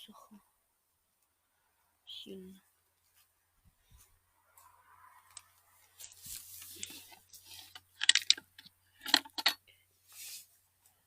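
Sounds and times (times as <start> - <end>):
twigs and leaves crackling underfoot: 3.9 - 8.7
footsteps through dry forest litter: 5.8 - 7.1.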